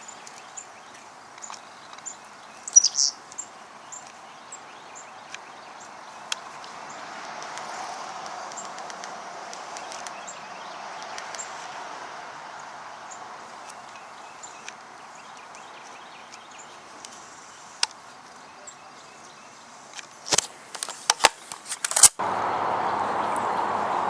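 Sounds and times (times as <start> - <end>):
faint bird chirps: 0.0 - 7.1, 9.7 - 19.8
outdoor background hiss: 0.0 - 24.0.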